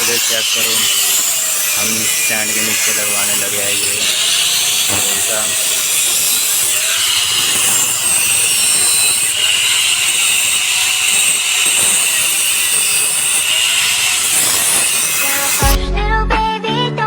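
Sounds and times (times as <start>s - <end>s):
power grinder grinding metal: 0.0s - 15.8s
music: 15.2s - 17.0s.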